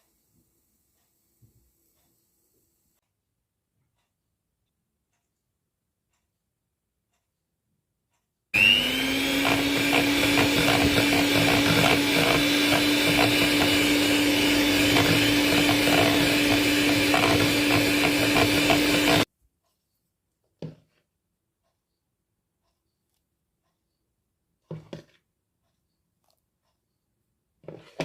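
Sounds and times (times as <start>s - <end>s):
electric blender motor: 8.6s - 19.3s.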